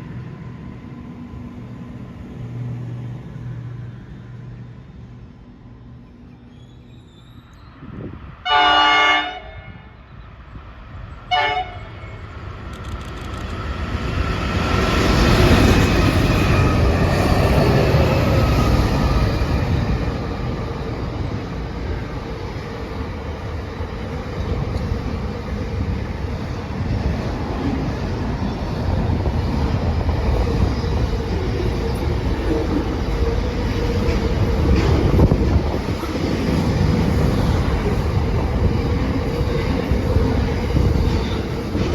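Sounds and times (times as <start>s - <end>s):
train rumble and rail noise: 0.0s - 41.9s
train horn blast: 8.4s - 10.0s, 11.3s - 12.2s.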